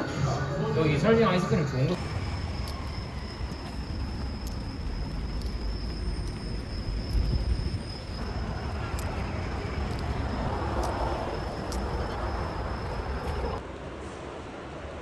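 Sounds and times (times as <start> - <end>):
low rumble: 1.9 - 13.6.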